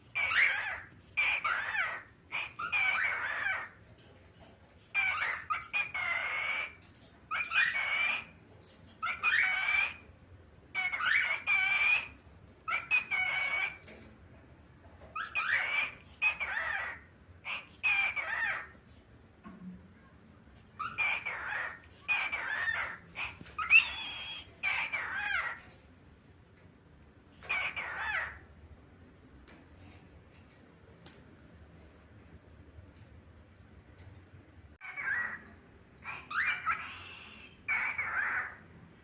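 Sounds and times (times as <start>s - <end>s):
cockatiel talking: 0.1s - 3.8s, 4.9s - 8.3s, 9.0s - 10.0s, 10.8s - 13.8s, 15.2s - 18.8s, 20.8s - 25.6s, 27.4s - 28.4s, 34.8s - 38.8s.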